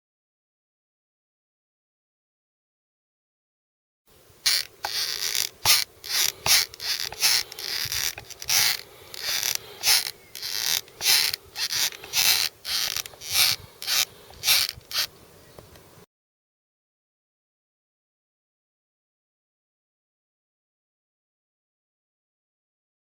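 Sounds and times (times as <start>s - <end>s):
skateboard truck creaking: 4.4s - 15.8s.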